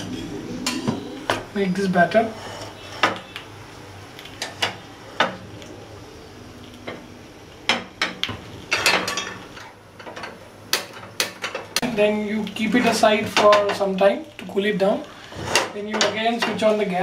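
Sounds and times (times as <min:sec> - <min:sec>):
utensils and dishes clinking: 0:07.7 - 0:11.8.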